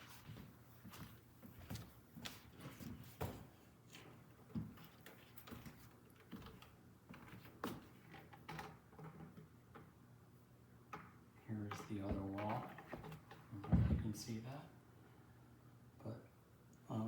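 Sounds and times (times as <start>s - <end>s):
soft knocks and bumps of panel: 11.9s - 14.2s.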